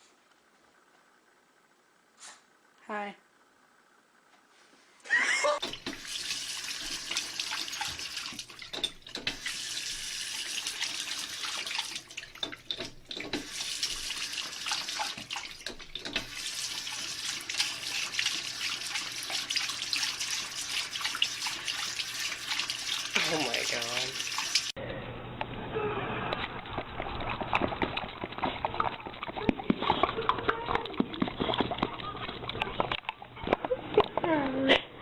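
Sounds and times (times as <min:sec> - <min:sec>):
water running from tap: 0:05.6 - 0:24.8.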